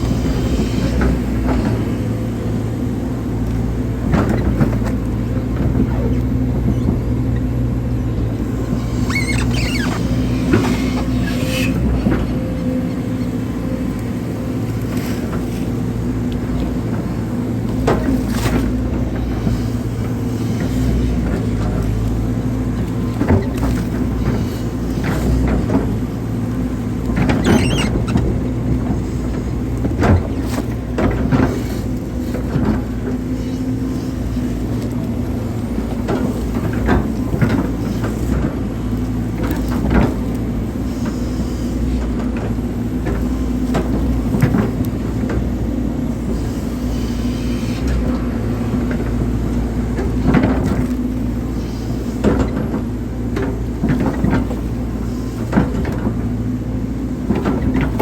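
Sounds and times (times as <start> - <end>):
excavator diesel engine: 0.0 - 58.0.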